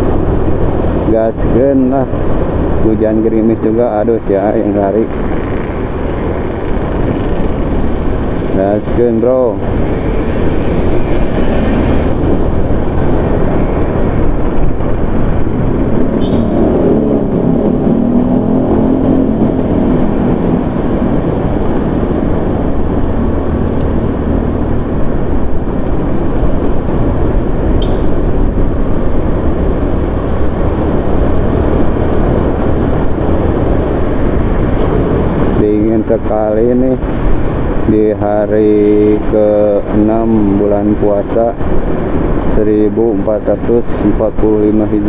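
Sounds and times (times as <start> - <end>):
road and engine noise: 0.0 - 45.0
wavering vehicle engine tone: 0.0 - 45.0
wind buffeting microphone: 0.0 - 45.0.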